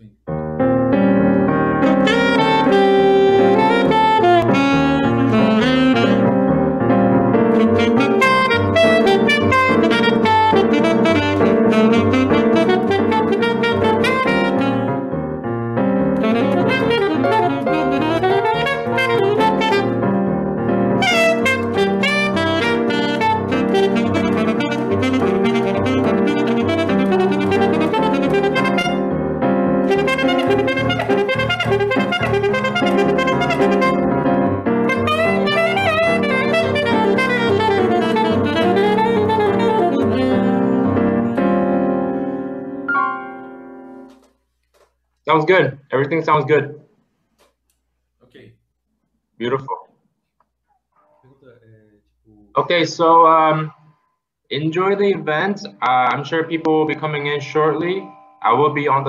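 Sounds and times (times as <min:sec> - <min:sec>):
piano accompaniment: 0:00.0 - 0:44.5, 0:54.5 - 0:59.0
saxophone melody: 0:00.4 - 0:44.3.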